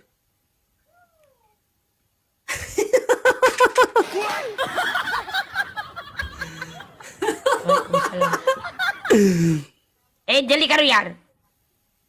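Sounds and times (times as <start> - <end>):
person laughing loudly: 2.5 - 9.7.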